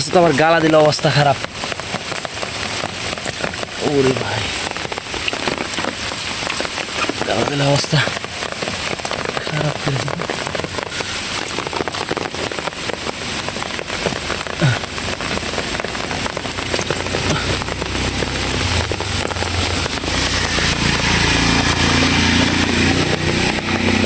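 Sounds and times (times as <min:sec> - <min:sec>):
heavy rain falling: 0:00.0 - 0:24.0
engine hum: 0:14.7 - 0:24.0.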